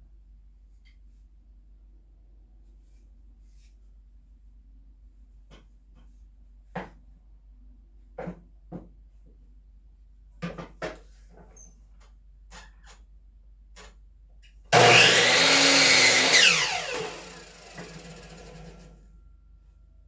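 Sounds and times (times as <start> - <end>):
electric power saw running: 14.8 - 19.0.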